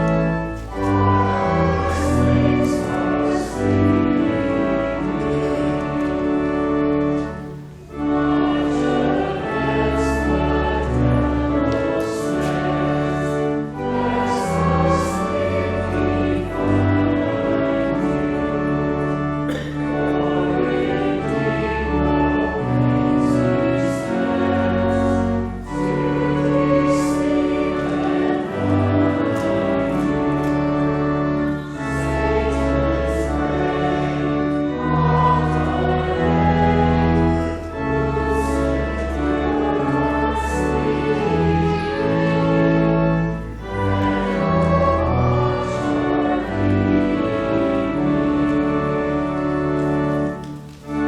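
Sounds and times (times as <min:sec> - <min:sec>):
hymn singing: 0:00.0 - 0:51.0
sustained organ chords: 0:00.0 - 0:51.0.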